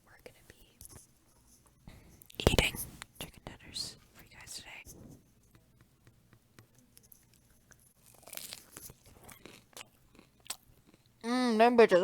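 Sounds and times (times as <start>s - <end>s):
crunchy food chewing: 7.2s - 11.2s.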